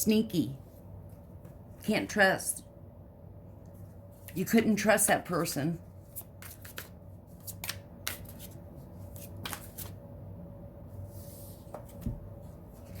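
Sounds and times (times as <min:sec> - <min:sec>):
cards shuffling and snapping: 0:06.0 - 0:10.0.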